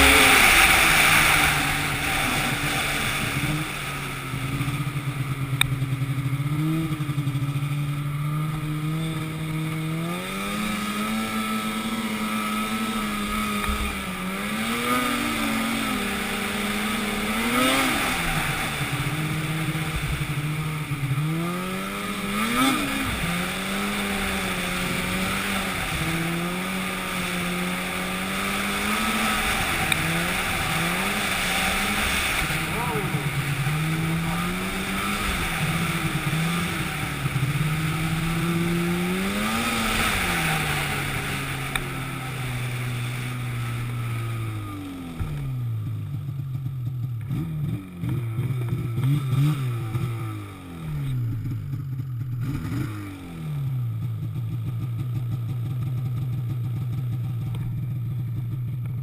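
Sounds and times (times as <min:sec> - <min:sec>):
engine revving up and down: 0:00.0 - 0:45.7, 0:47.2 - 0:51.6, 0:52.4 - 0:53.8.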